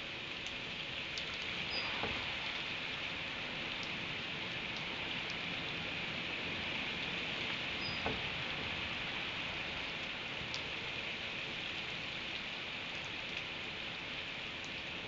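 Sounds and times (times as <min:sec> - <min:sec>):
steady rain falling: 0:00.0 - 0:15.0
sharp drip ticks: 0:04.7 - 0:05.4, 0:10.0 - 0:10.7.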